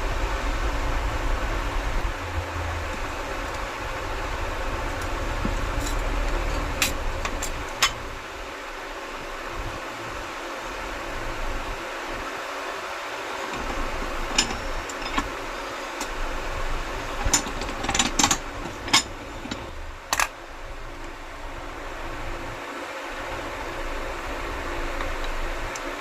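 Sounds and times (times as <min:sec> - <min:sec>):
steady mechanical hum: 0:00.0 - 0:26.0
metallic clicks and clinks: 0:13.6 - 0:15.4.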